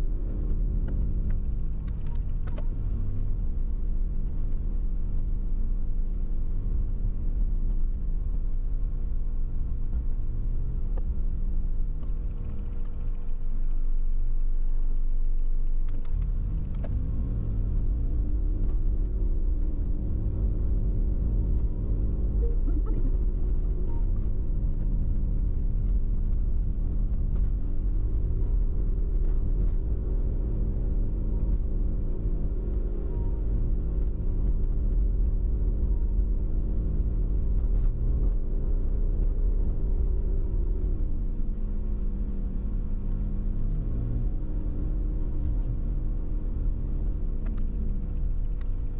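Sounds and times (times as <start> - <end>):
van road and engine rumble: 0.0 - 48.9
faint clicks: 47.4 - 48.8.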